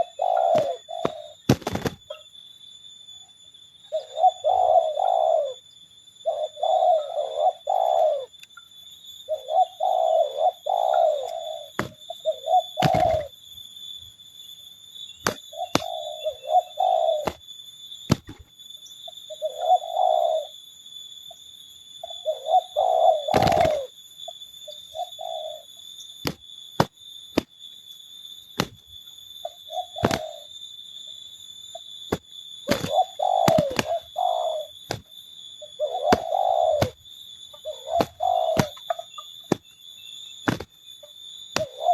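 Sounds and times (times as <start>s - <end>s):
doves cooing: 0.0s - 2.2s, 3.9s - 8.4s, 9.3s - 13.4s, 15.3s - 17.4s, 19.2s - 20.6s, 22.0s - 25.7s, 29.4s - 30.6s, 32.1s - 39.6s, 40.5s - 41.9s.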